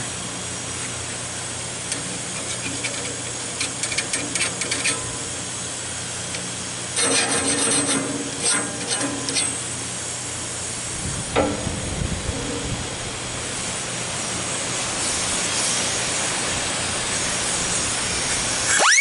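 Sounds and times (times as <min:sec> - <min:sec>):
steady low hum: 0:00.0 - 0:18.7
file rasping on saw blade: 0:07.0 - 0:09.6.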